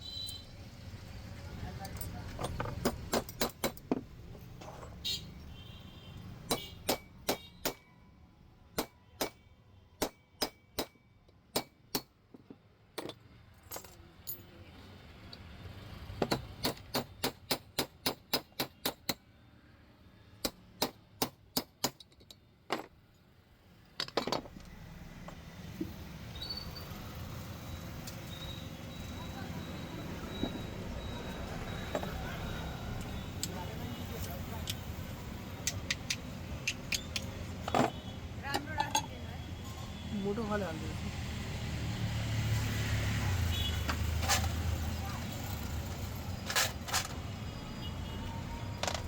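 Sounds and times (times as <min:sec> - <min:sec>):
sharp metallic tapping: 0:06.4 - 0:07.9.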